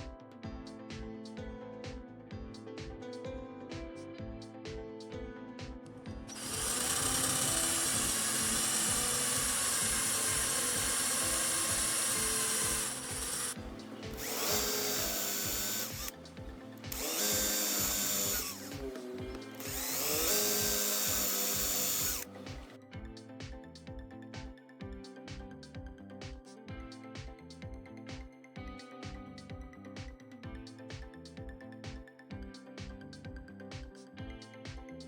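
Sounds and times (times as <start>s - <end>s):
background music: 0.0s - 35.0s
power tool motor whining: 6.3s - 22.8s.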